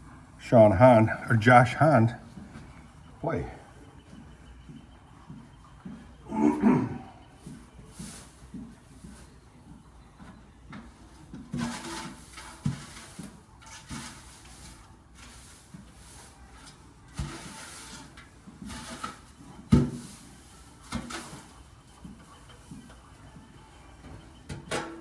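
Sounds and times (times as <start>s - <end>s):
short rustling scrapes: 7.4s - 9.4s, 11.5s - 22.9s.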